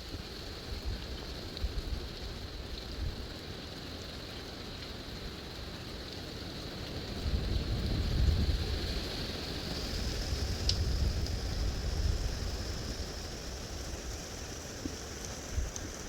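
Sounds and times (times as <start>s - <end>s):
steady hiss: 0.0s - 16.0s
wind buffeting microphone: 7.0s - 16.0s.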